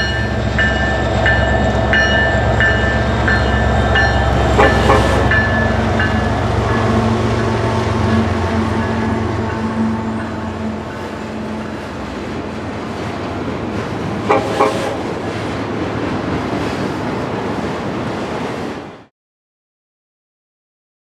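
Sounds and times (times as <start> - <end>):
train rumbling by: 0.0 - 19.1
train whistle toots: 4.6 - 5.3, 14.3 - 15.0.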